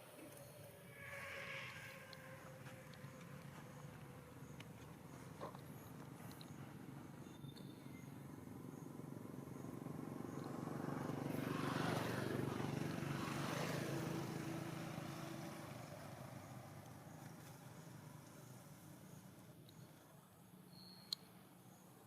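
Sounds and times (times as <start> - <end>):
vehicle passing by: 8.6 - 17.5.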